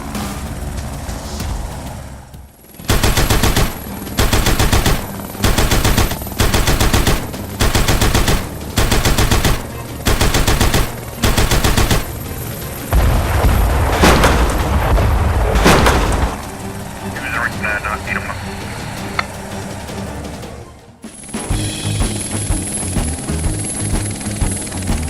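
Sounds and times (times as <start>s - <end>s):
machine-gun-like rapid bangs: 2.7s - 18.3s.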